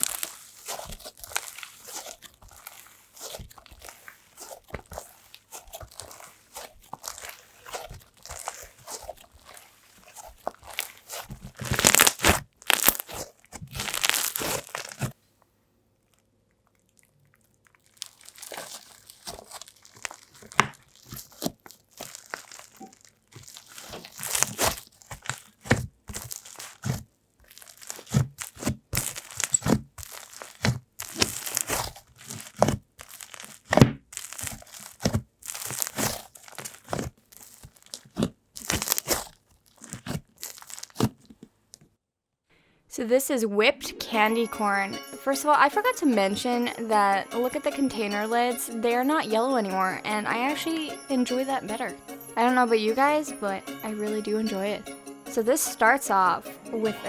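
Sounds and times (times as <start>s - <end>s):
slime squished by hand: 0.0s - 15.2s, 16.5s - 41.4s.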